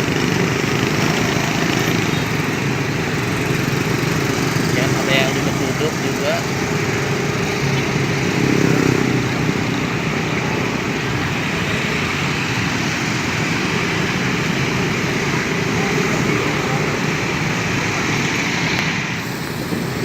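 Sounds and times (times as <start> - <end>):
road traffic noise: 0.0 - 20.0
small motorcycle engine running: 0.0 - 20.0.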